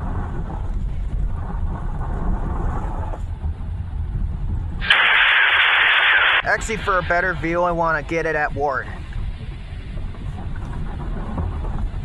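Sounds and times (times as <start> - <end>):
low road rumble in car: 0.0 - 5.0, 8.8 - 12.0
radio scanner static hiss: 4.8 - 9.0.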